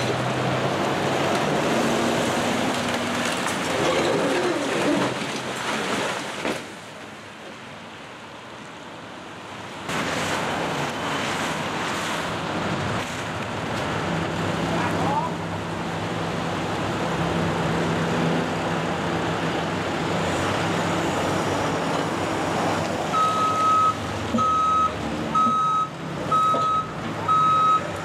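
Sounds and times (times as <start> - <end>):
tyres hissing on wet road: 9.4 - 24.3.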